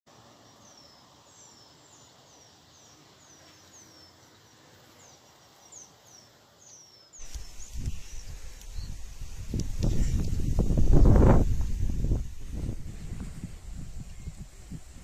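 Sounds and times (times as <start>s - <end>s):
background hiss: 0.1s - 15.0s
wind buffeting microphone: 7.2s - 15.0s.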